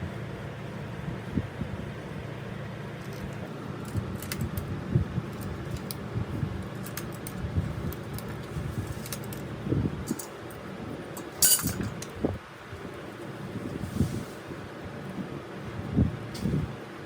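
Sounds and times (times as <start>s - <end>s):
low background noise: 0.0s - 17.0s
small metal parts clinking: 3.0s - 4.7s, 6.6s - 10.6s, 11.2s - 12.2s
sharp metallic clatter: 10.1s - 10.6s, 11.2s - 12.1s.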